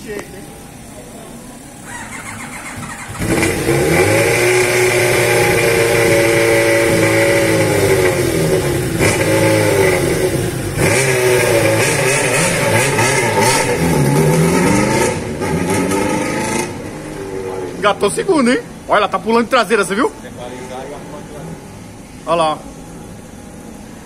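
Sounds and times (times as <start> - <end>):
motorcycle engine revving: 1.8 - 17.7.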